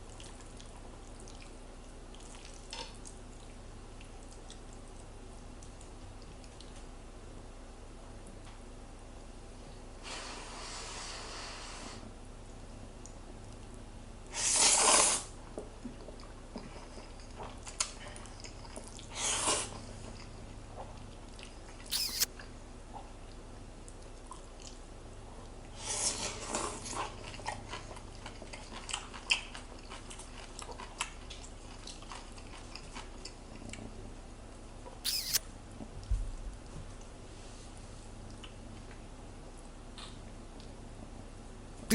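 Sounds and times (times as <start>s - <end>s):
noisy eating: 0.0s - 6.8s, 27.1s - 33.8s.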